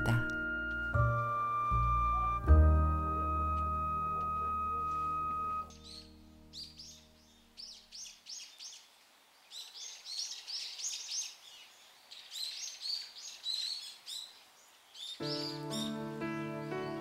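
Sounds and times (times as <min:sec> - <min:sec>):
small songbirds chirping: 0:04.9 - 0:17.0.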